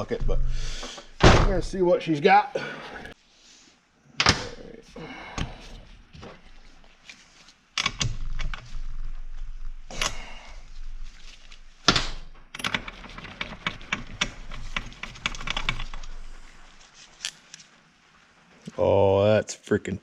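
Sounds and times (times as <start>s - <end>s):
loud knocks: 1.2s - 1.7s.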